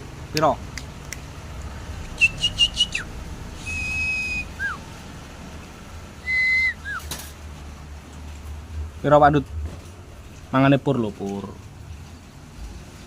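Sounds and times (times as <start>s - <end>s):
whistled notes: 2.2s - 4.8s, 6.2s - 7.1s.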